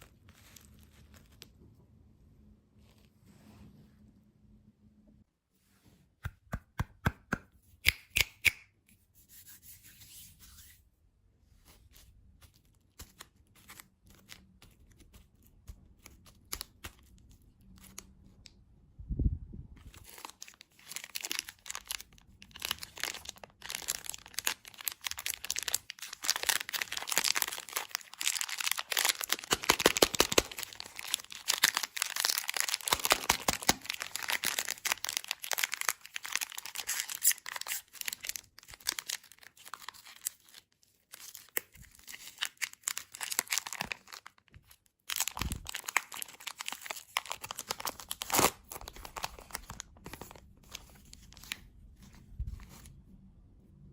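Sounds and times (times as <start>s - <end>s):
wrapper crinkling and tearing: 19.9s - 51.7s.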